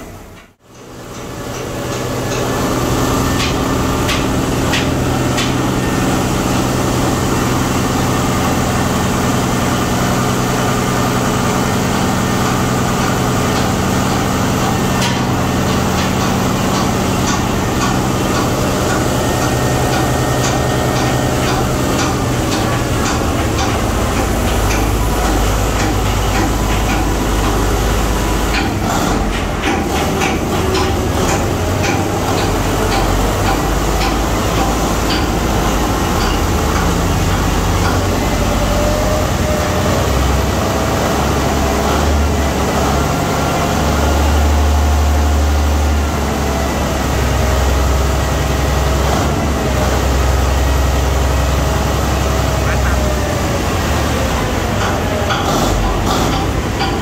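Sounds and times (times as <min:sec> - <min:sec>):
diesel engine droning: 0:01.8 - 0:57.0
metallic clicks and knocks: 0:13.0 - 0:27.8, 0:28.4 - 0:38.4, 0:54.7 - 0:57.0.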